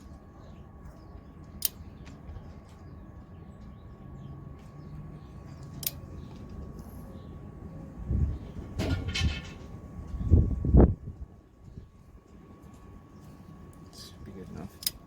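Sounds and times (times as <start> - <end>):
low steady hum: 0.0 - 15.0
sharp tool clicks: 5.8 - 6.0, 14.8 - 15.0.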